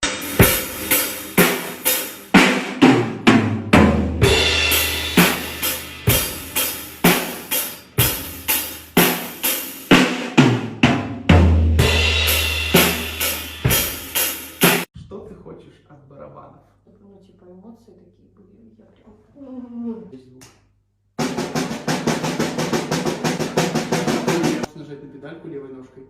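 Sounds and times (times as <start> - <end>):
drum kit playing a beat: 0.0 - 15.0, 21.2 - 24.7.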